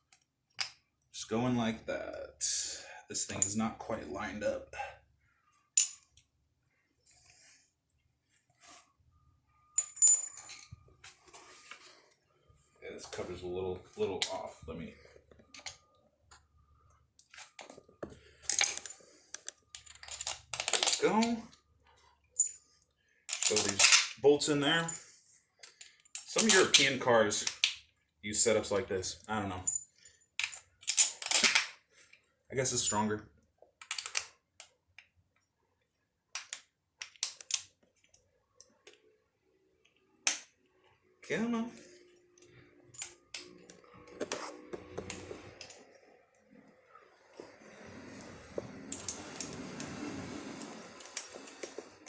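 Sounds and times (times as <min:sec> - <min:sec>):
metal parts clinking: 0:05.7 - 0:06.2, 0:09.7 - 0:10.8, 0:18.4 - 0:21.4, 0:22.4 - 0:22.6, 0:23.3 - 0:24.2, 0:25.6 - 0:27.7, 0:29.6 - 0:31.7, 0:33.8 - 0:34.3, 0:42.9 - 0:43.8.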